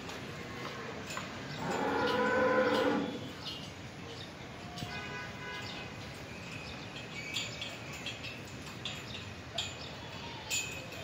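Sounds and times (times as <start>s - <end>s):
birds chirping: 1.4s - 4.6s.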